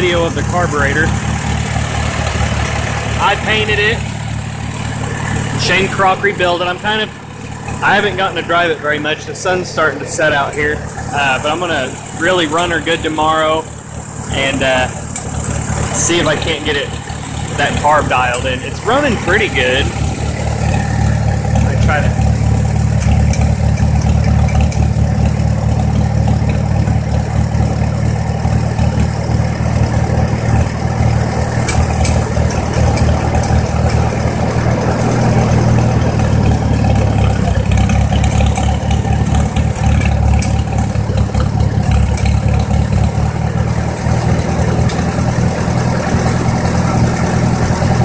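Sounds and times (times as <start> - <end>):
tractor engine idling: 0.0 - 48.0.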